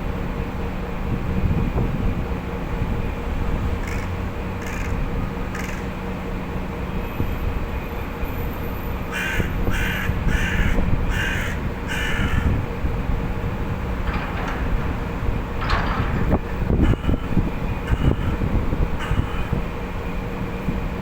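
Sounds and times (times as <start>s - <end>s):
crow cawing: 9.1s - 12.6s
low rumble: 12.3s - 20.0s.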